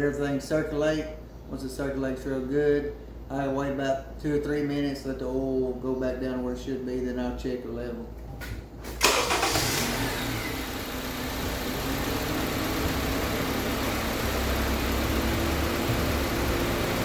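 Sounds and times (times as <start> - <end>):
car engine starting and idling: 8.8 - 17.0.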